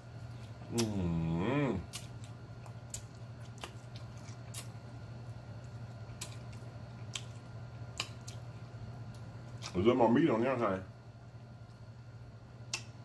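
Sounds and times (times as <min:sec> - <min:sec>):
low steady hum: 0:00.0 - 0:13.0
chewing and mouth clicks: 0:01.8 - 0:09.8, 0:12.7 - 0:13.0.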